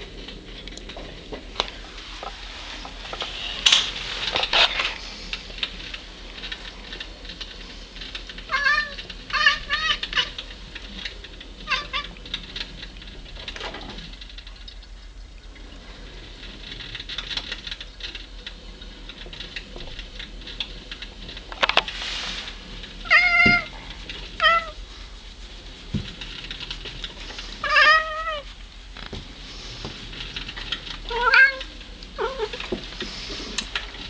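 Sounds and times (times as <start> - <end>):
cat meowing: 23.1 - 23.7, 24.4 - 24.8, 27.6 - 28.4, 31.1 - 32.6.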